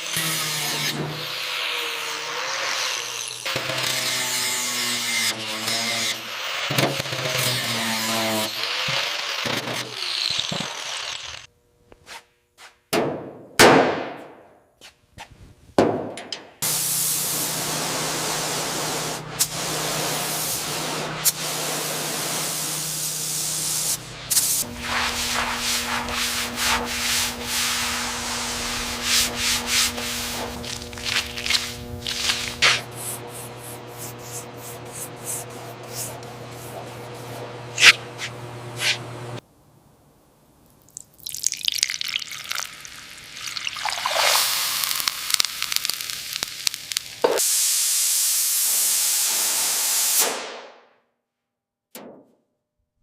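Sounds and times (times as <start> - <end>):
machine humming: 16.6 - 39.4
steady hiss: 23.4 - 32.7
clicks and scrapes: 37.8 - 39.1.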